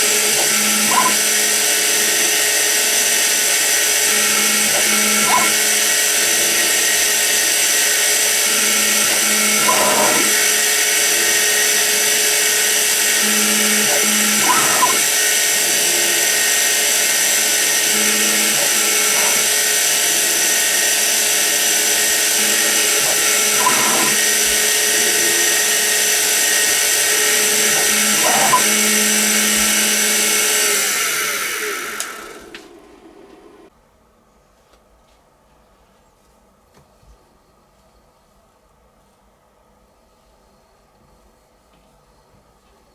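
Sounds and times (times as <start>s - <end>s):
milling spindle whine: 0.0s - 33.7s.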